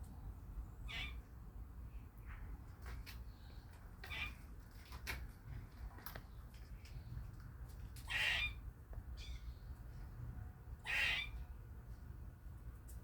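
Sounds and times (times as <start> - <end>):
squirrel squawking: 0.8 - 1.2, 8.0 - 9.5, 10.8 - 11.4.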